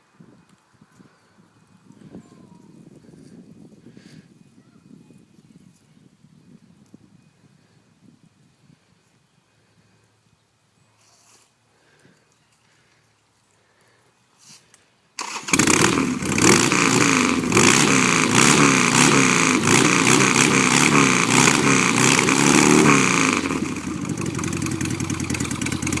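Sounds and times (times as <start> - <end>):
motorcycle engine revving: 15.2 - 26.0.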